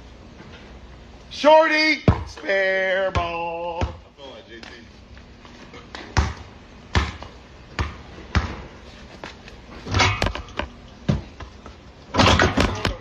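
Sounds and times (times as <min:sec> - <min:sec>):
basketball bouncing on hard court: 0:02.0 - 0:02.4, 0:03.0 - 0:04.1, 0:05.9 - 0:08.7.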